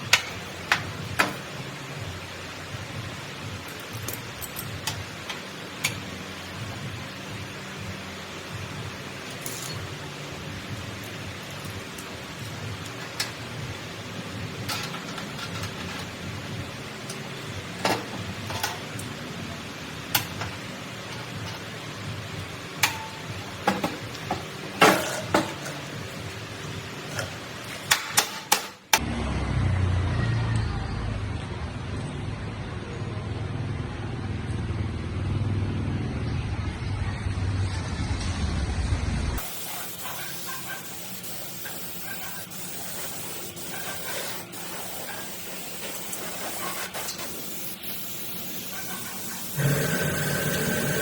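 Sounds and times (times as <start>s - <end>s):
steady hiss: 39.4s - 51.0s.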